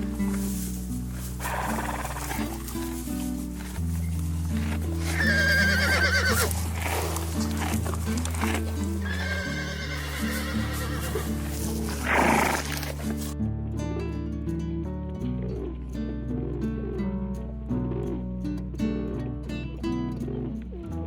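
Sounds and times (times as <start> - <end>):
background music: 0.0 - 21.0
horse whinnying: 1.4 - 2.4, 5.0 - 7.2, 9.0 - 13.0.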